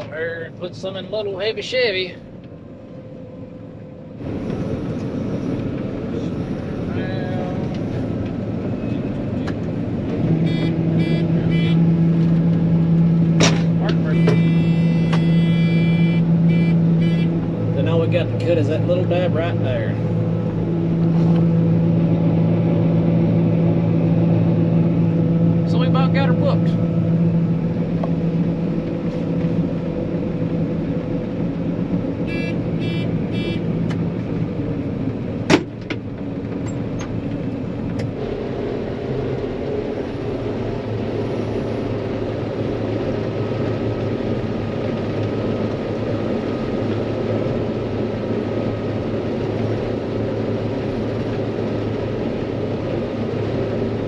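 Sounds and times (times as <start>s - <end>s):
combine harvester running: 0.0s - 54.0s
short beeps: 10.4s - 11.8s, 14.1s - 17.3s.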